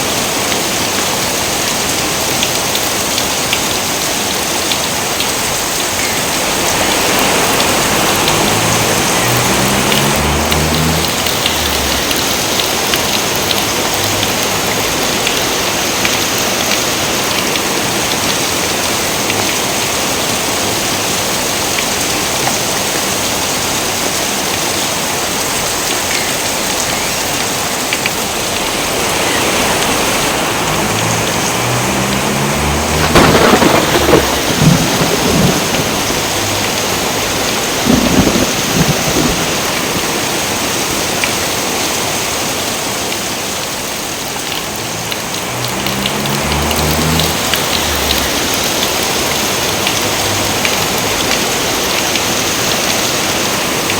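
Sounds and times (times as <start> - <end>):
heavy rain: 0.0 - 53.9
thunder: 32.2 - 40.4.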